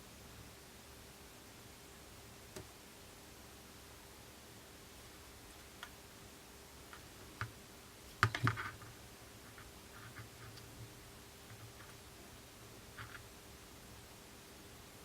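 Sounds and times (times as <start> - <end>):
small tools clicking and tapping: 8.2 - 8.9.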